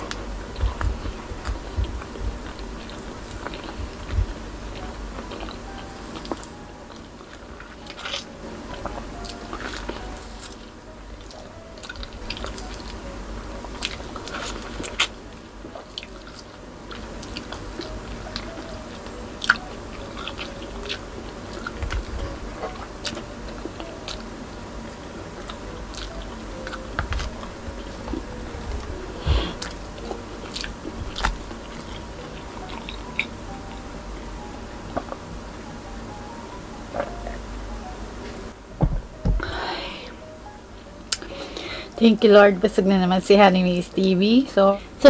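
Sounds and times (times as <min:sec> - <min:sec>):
person sucking and chewing: 0:25.4 - 0:33.8.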